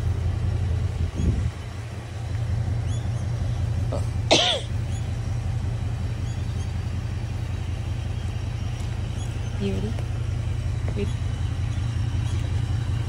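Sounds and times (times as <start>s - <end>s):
car engine idling: 0.0s - 13.0s
person coughing: 4.3s - 4.7s.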